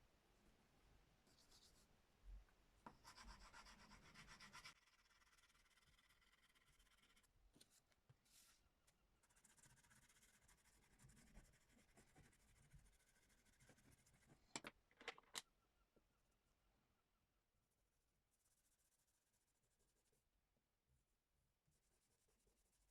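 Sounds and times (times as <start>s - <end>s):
drawing tool scratching on paper: 2.9s - 7.3s, 9.2s - 14.3s.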